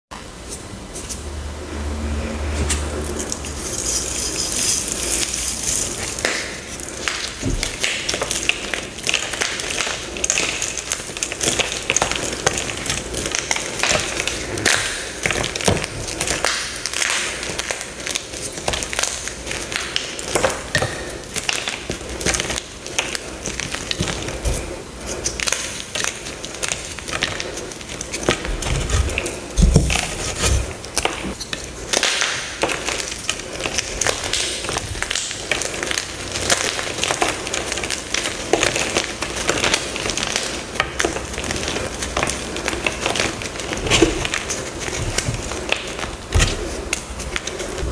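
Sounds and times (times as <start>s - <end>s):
chalk blocks crunching: 3.2s - 8.4s, 20.4s - 31.6s.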